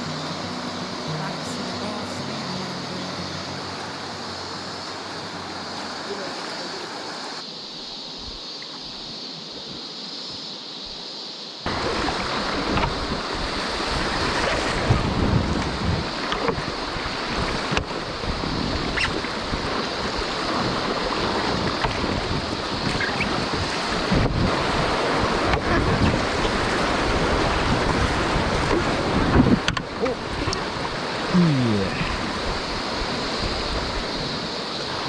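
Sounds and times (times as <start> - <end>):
river water rushing and splashing: 0.0 - 8.6, 11.7 - 35.0
wind buffeting microphone: 11.7 - 31.3, 32.0 - 35.0.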